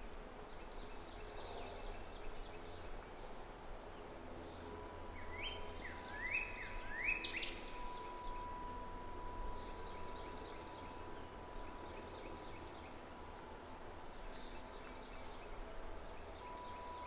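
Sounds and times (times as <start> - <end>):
faint steady tone: 0.0 - 17.0
outdoor background noise: 0.0 - 17.0
faint high bird calls: 4.0 - 17.0
bird calling rising notes: 4.8 - 17.0.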